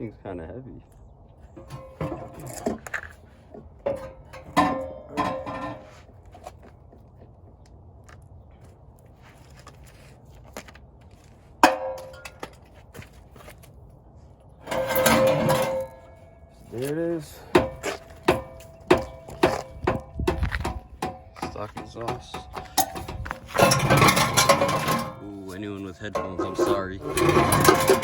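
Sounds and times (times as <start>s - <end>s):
metal exhaust clanking: 1.6s - 3.2s, 3.8s - 5.9s, 14.6s - 28.0s.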